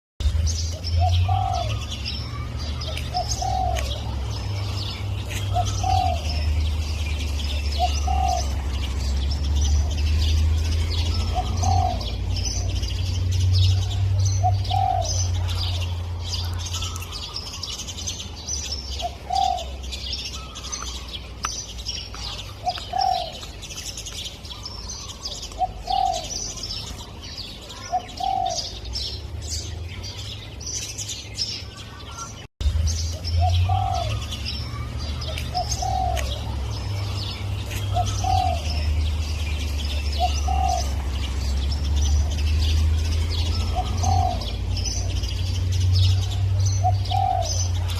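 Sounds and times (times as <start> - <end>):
small birds chirping: 0.2 - 47.9
dove cooing: 0.8 - 9.2, 10.2 - 13.0, 13.6 - 17.8, 18.9 - 21.1, 22.2 - 23.6, 24.6 - 27.1, 27.7 - 28.8, 33.2 - 42.7, 43.3 - 45.4, 46.0 - 47.9.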